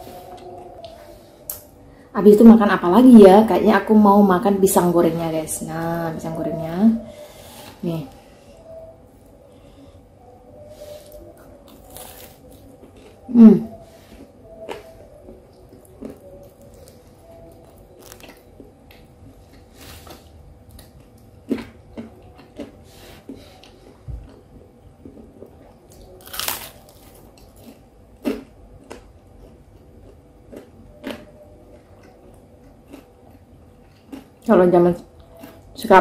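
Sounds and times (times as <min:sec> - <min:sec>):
person chewing fried food: 0:10.8 - 0:35.8.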